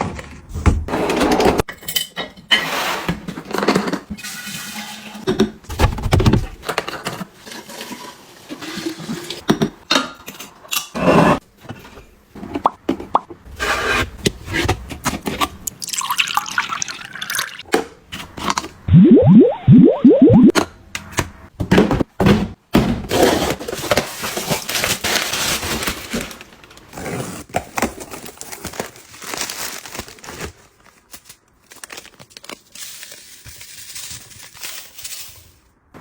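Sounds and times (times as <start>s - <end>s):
packaging rustling: 27.5s - 35.0s.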